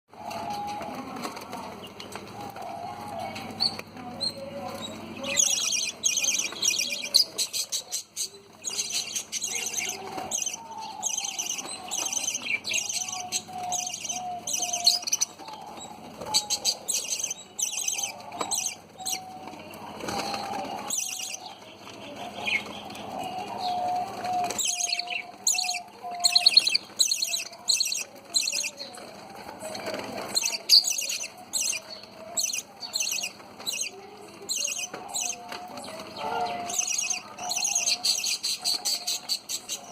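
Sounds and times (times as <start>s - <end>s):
budgerigars chirping: 3.6s - 19.3s, 23.6s - 28.8s, 30.2s - 33.9s, 36.2s - 39.9s.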